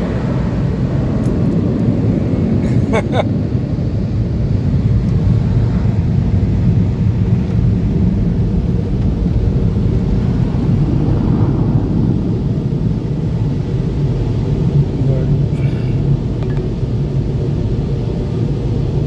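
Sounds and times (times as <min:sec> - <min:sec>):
air-dryer blowers roaring: 0:00.0 - 0:03.2.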